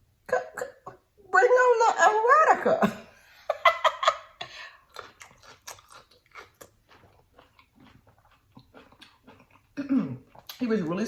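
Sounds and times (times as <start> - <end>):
chewing and wet mouth smacks: 4.6 - 11.0.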